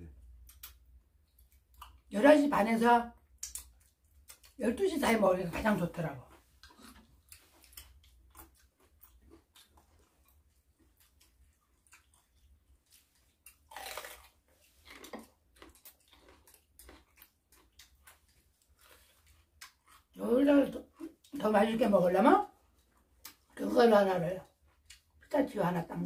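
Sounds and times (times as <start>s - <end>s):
crunchy chewing of vegetables: 6.3s - 20.2s.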